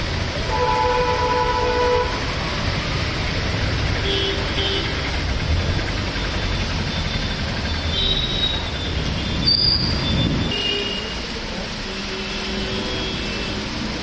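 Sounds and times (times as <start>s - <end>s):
heavy rain: 0.0s - 14.0s
gusty wind: 9.2s - 10.6s.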